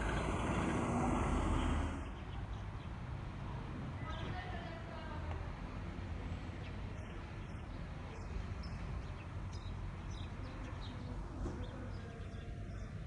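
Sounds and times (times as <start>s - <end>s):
steady low rumble: 0.0s - 2.2s.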